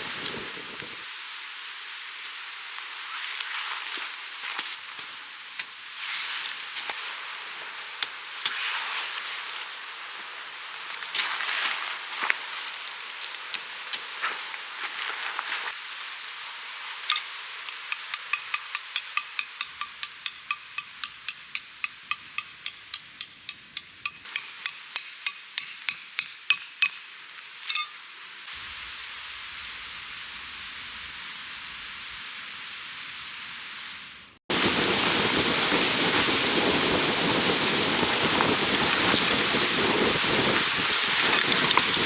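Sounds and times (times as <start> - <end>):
faint steady hiss: 0.0 - 42.0
metal tent stake being hammered: 17.9 - 27.1.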